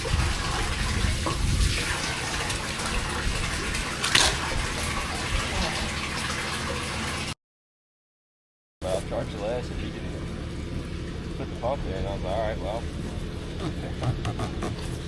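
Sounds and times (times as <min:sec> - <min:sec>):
water rushing: 0:00.0 - 0:07.4.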